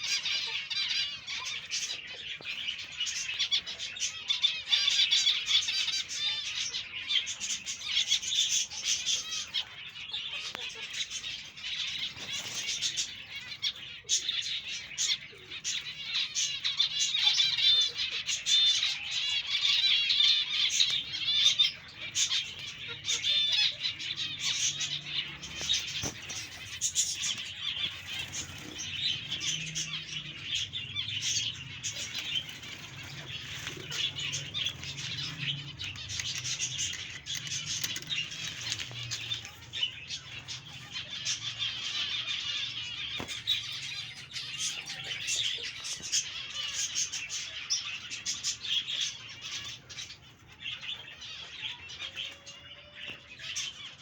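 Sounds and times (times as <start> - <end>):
budgerigars chattering and chirping: 0.0 - 54.0
wings fluttering: 10.5 - 13.4, 20.7 - 40.7.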